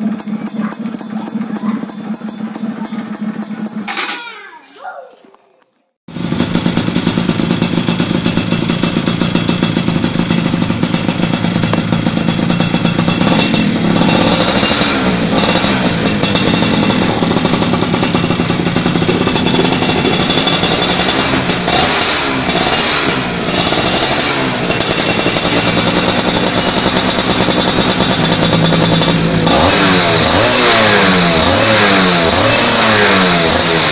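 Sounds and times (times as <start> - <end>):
two-stroke motorcycle engine revving: 0.0 - 4.2, 6.1 - 33.9.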